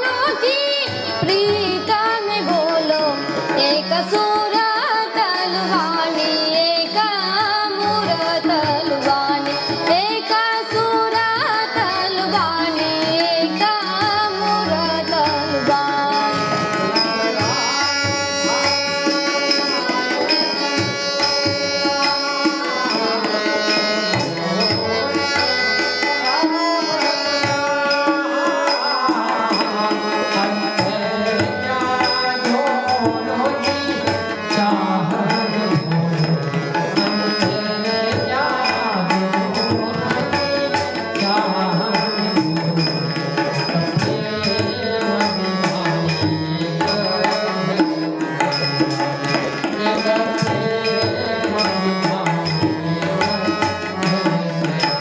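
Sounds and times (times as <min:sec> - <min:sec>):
harmonium melody: 0:00.0 - 0:55.0
tabla rhythm: 0:00.0 - 0:55.0.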